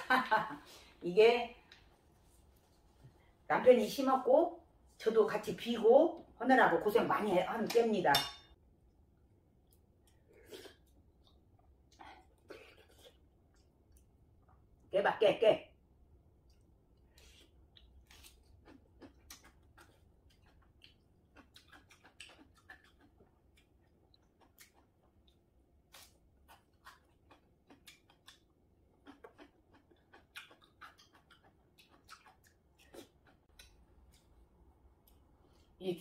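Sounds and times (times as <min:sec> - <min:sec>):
chewing with wet crunches: 0:16.4 - 0:34.4.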